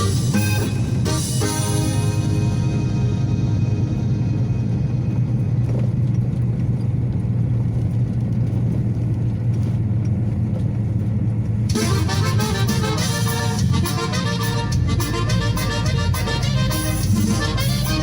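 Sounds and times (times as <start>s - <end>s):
music: 0.0s - 4.9s, 11.7s - 18.0s
truck engine rumble: 0.0s - 18.0s.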